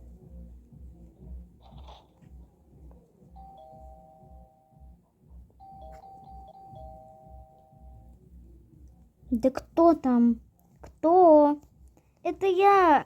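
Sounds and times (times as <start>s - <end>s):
two-tone doorbell chime: 3.4s - 5.0s, 5.6s - 8.2s.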